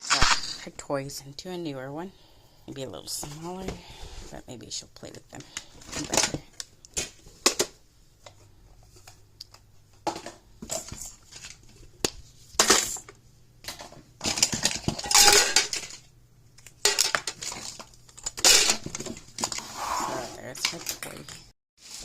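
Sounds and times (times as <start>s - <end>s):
hard toys clattering into a bin: 12.6s - 13.0s, 13.7s - 16.1s, 16.8s - 19.6s.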